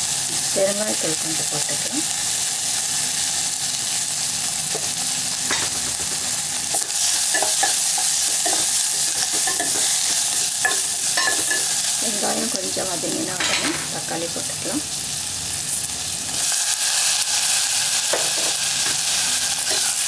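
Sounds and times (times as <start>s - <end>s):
food sizzling in hot oil: 0.0s - 20.0s
metal spoon scraping pot: 5.5s - 11.7s.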